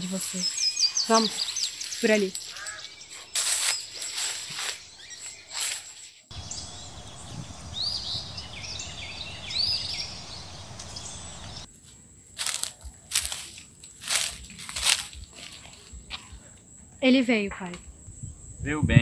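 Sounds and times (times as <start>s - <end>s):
footsteps crunching through leaves: 0.0s - 6.4s, 11.7s - 16.2s
birds chirping: 0.0s - 11.7s
outdoor background noise: 0.0s - 19.0s.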